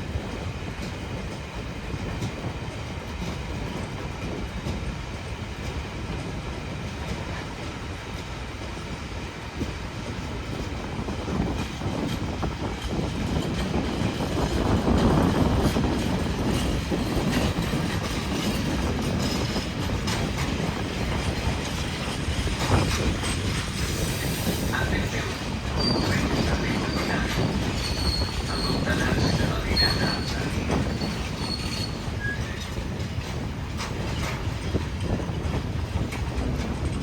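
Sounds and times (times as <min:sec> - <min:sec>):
freight train rumbling: 0:00.0 - 0:37.0
high-pitched wheel squeal: 0:27.8 - 0:32.7.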